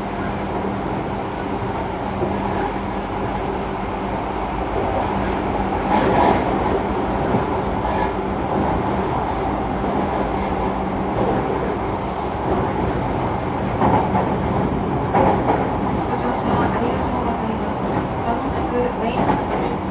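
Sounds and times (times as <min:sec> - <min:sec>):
train wheels rumbling on rail: 0:00.0 - 0:19.9
rail-joint clicks: 0:15.0 - 0:19.9.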